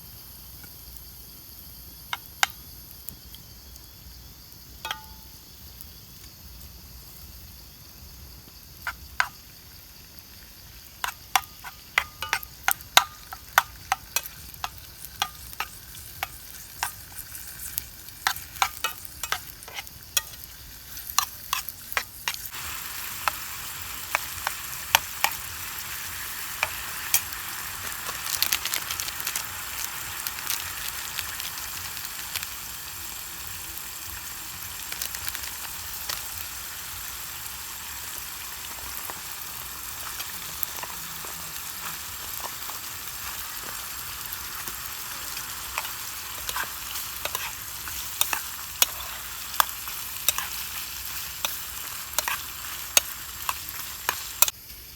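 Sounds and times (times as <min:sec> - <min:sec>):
food sizzling in hot oil: 0:00.0 - 0:54.9
oil popping and crackling: 0:08.5 - 0:54.6.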